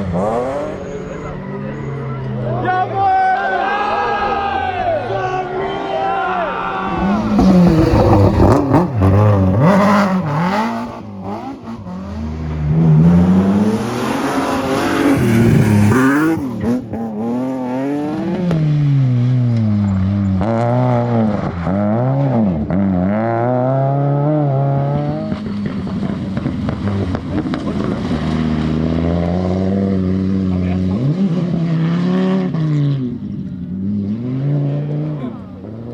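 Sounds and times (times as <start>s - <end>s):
rally car engine revving: 0.0s - 2.7s, 6.6s - 35.9s.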